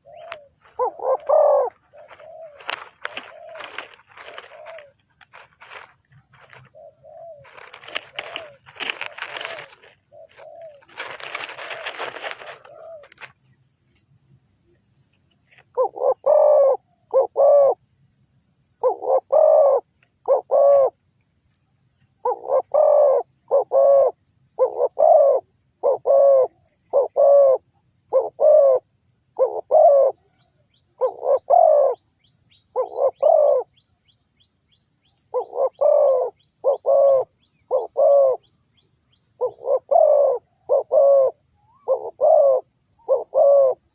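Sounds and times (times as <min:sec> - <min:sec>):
dove cooing: 0:00.0 - 0:13.4, 0:15.6 - 0:17.8, 0:18.8 - 0:21.0, 0:22.2 - 0:32.0, 0:32.7 - 0:33.7, 0:35.3 - 0:38.5, 0:39.4 - 0:43.9
noisy rustle: 0:00.2 - 0:06.8, 0:07.4 - 0:14.0.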